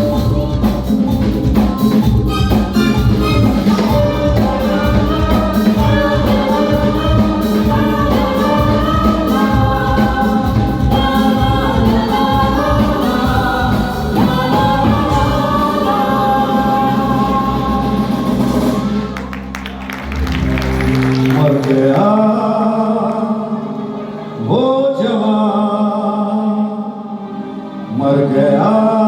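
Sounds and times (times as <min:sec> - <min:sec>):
chorus of voices singing: 0:00.0 - 0:19.3, 0:21.2 - 0:29.0
drums: 0:00.0 - 0:22.3
live band playing a song: 0:00.0 - 0:24.4
bass: 0:00.0 - 0:26.1.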